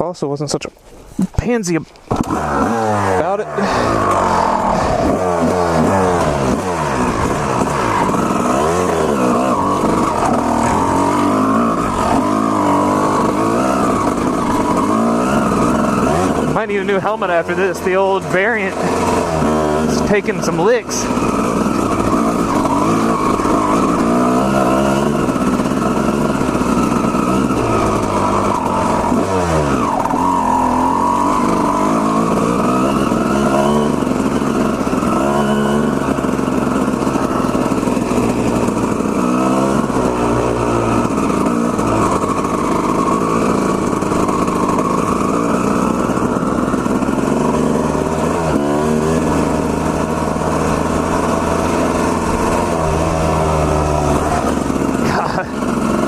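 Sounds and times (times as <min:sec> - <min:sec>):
two-stroke dirt bike engine revving: 0:01.2 - 0:56.0.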